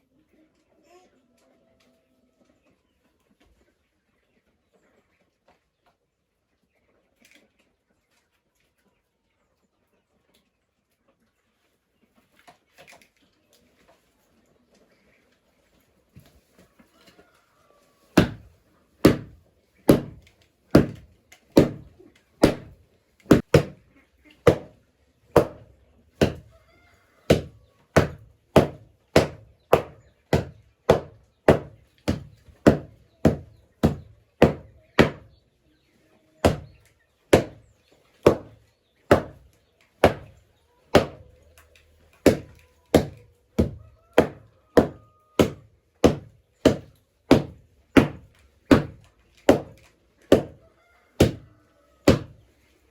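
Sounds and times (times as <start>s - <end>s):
hand tool chopping: 18.2s - 23.8s, 24.4s - 24.7s, 25.4s - 26.5s, 27.3s - 35.3s, 36.4s - 37.6s, 38.2s - 41.3s, 42.2s - 50.6s, 51.2s - 51.5s, 52.1s - 52.4s.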